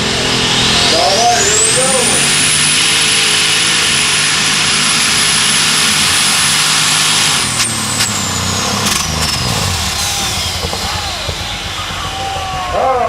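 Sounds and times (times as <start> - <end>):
tractor engine at full power: 0.0 - 13.0
engine pops: 7.4 - 13.0.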